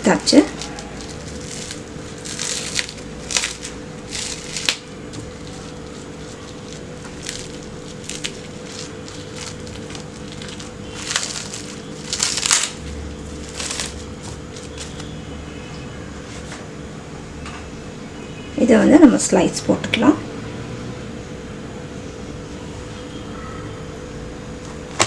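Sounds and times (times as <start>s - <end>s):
wrapping crinkling: 0.0s - 15.2s.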